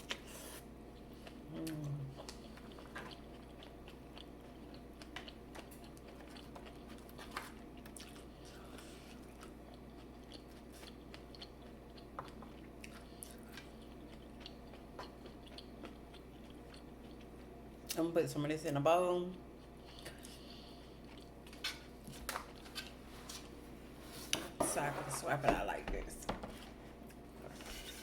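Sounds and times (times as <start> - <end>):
person chewing food: 0.0 - 17.9, 19.4 - 23.7.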